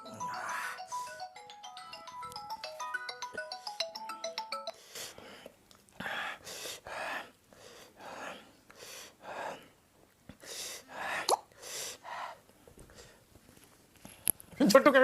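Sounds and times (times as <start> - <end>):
person breathing hard through mouth: 0.0 - 1.2, 4.7 - 13.2.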